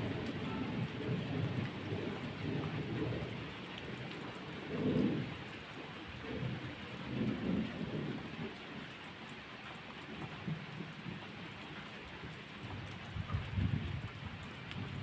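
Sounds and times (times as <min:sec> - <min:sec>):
steady rain falling: 0:00.0 - 0:15.0
rolls of thunder: 0:04.7 - 0:05.3.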